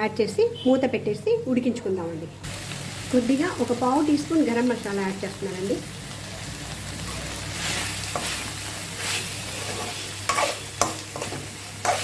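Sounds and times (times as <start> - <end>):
chicken sizzling in a pan: 2.4 - 12.0
spatula scraping a pan: 7.5 - 12.0.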